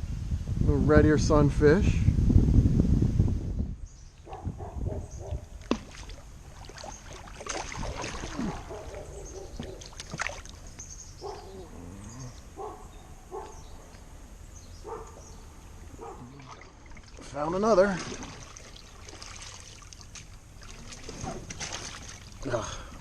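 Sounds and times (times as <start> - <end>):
knocks and clicks on kayak hull: 9.5 - 10.5.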